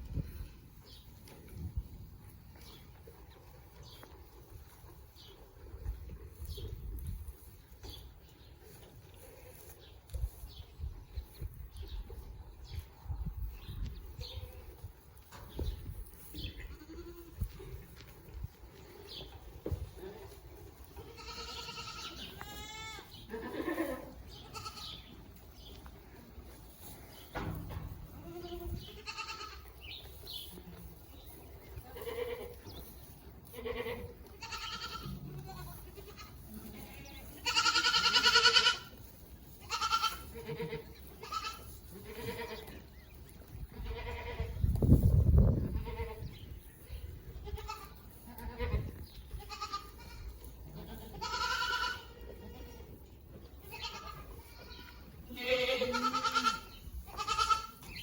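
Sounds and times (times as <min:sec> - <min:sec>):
goats bleating: 0:16.5 - 0:18.1, 0:19.9 - 0:25.1, 0:28.1 - 0:29.8, 0:31.8 - 0:32.6, 0:33.4 - 0:39.0, 0:39.6 - 0:42.8, 0:43.7 - 0:44.6, 0:45.8 - 0:46.4, 0:47.3 - 0:53.0, 0:53.6 - 0:58.0.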